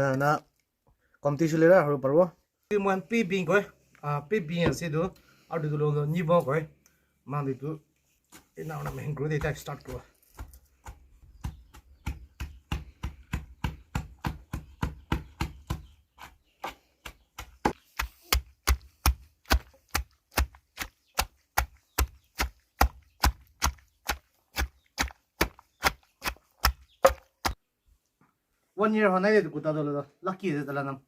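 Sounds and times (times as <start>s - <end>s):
chopping on a board: 10.3s - 27.6s.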